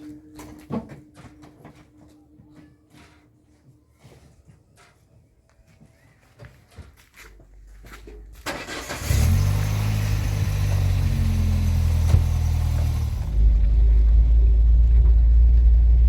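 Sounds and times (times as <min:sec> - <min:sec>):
vehicle engine starting and running: 0:08.4 - 0:16.0.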